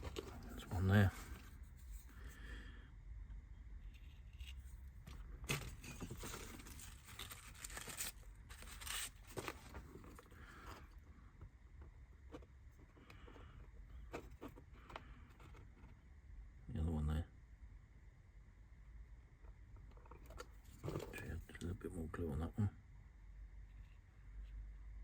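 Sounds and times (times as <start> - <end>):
kit parts scraping and clicking: 3.9 - 11.0.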